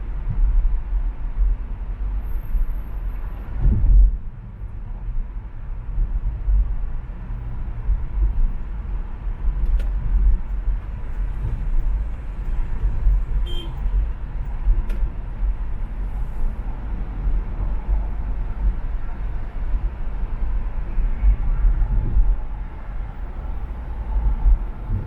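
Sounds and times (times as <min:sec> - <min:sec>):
car engine and road rumble: 0:00.0 - 0:25.0.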